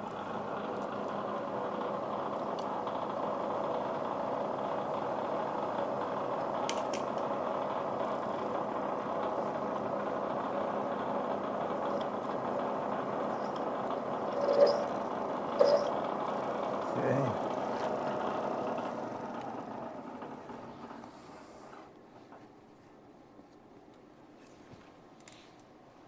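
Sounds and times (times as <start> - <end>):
metalworking machine humming: 7.4 - 18.8.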